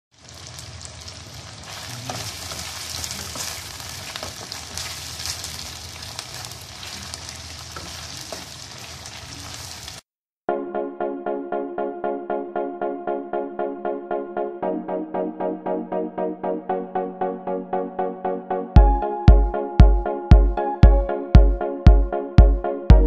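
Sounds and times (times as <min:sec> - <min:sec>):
chicken sizzling in oil: 0:00.1 - 0:10.1
wooden spatula scraping and knocking: 0:02.0 - 0:05.4, 0:06.3 - 0:09.9.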